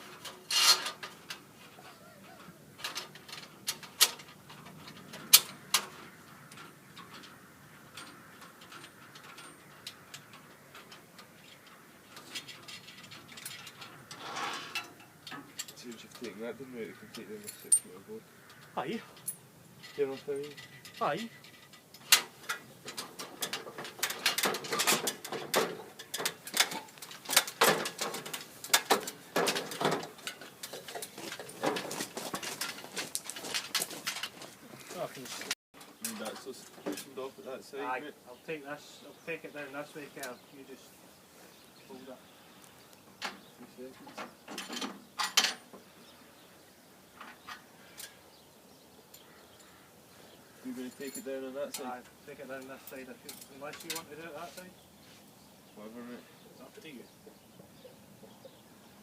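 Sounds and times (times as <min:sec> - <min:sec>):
scaffold parts clanking and rattling: 0:00.0 - 0:37.6, 0:43.2 - 0:46.0, 0:50.7 - 0:54.8.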